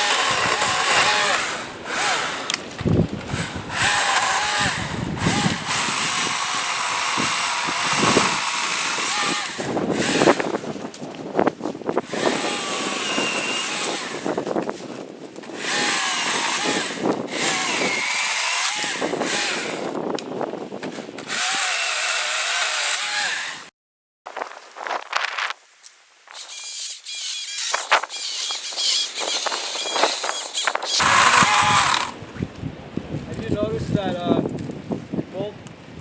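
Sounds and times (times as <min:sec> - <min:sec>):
electric chainsaw cutting wood: 0:00.0 - 0:10.9, 0:12.0 - 0:20.2, 0:20.8 - 0:23.7, 0:26.3 - 0:32.4.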